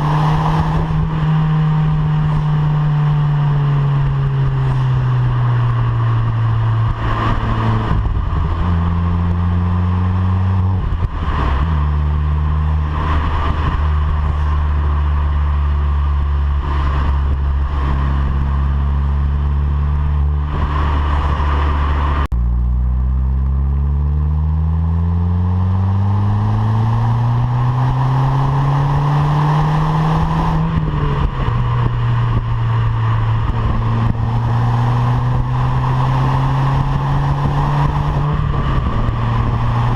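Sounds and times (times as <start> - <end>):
turbocharged car engine revving: 0.0 - 39.9.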